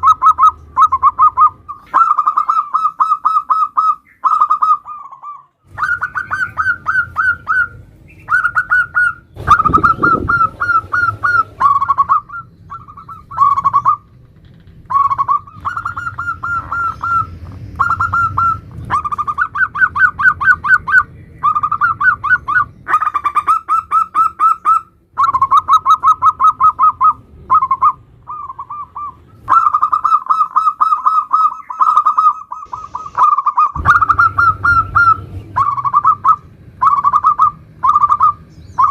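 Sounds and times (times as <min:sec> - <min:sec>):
dove cooing: 0:00.0 - 0:14.2, 0:14.8 - 0:38.9
low thump: 0:33.8 - 0:36.1.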